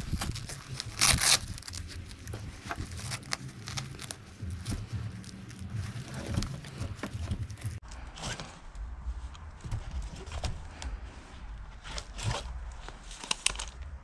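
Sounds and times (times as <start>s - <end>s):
velcro strap ripping: 0.0s - 5.7s
clicks and rustles of handling: 11.8s - 14.0s.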